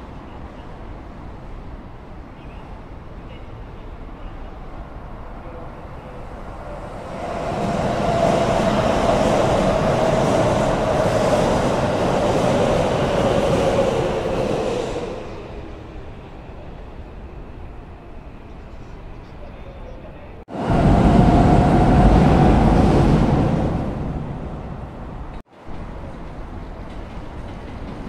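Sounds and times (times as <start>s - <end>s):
steady train whine: 4.2s - 19.1s, 20.5s - 28.0s
electric train passing: 4.6s - 19.1s, 20.5s - 28.0s.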